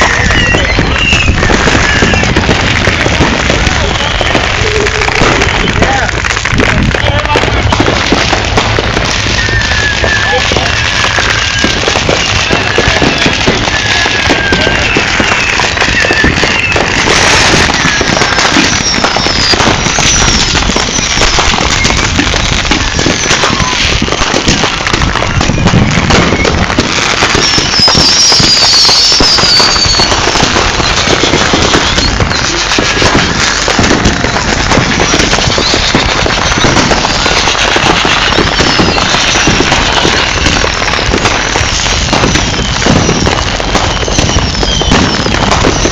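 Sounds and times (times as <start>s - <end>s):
fireworks crackling and popping: 0.0s - 45.9s
whistling firework glides: 0.0s - 45.9s.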